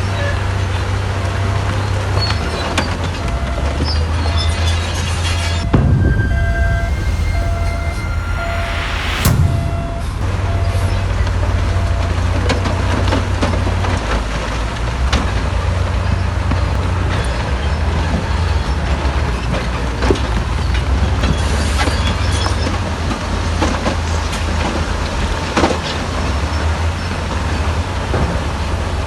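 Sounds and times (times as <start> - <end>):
diesel earthmoving machinery rumbling: 0.0 - 29.0.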